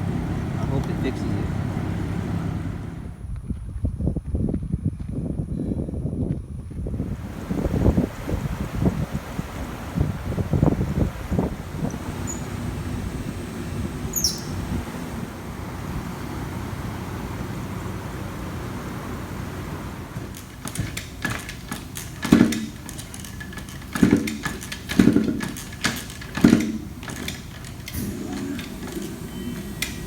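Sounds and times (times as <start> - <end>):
engine humming: 0.0 - 3.5, 7.0 - 30.0
metallic knocks and clanks: 20.2 - 30.0.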